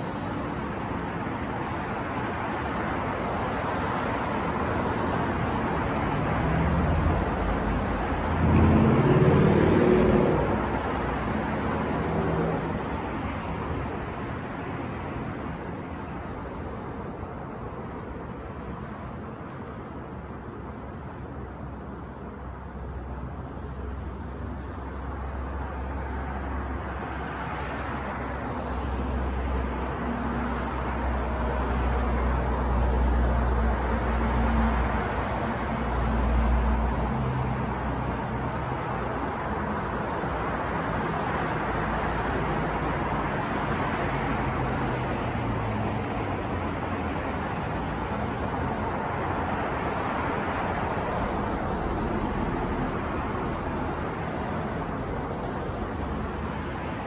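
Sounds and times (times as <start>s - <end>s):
passing vehicles: 0.0s - 57.0s
heavy vehicle rumbling by: 5.7s - 13.9s.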